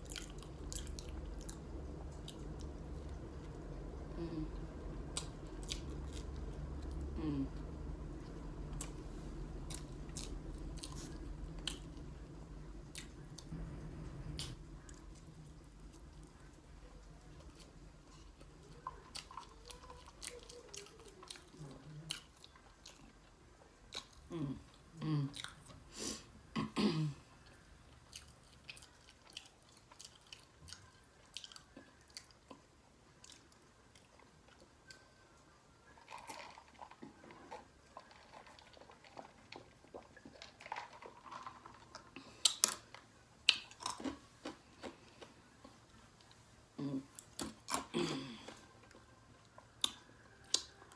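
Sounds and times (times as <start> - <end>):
person chewing food: 0.0 - 13.5, 14.3 - 25.8, 27.4 - 50.9
crunching and smacking: 36.0 - 46.4.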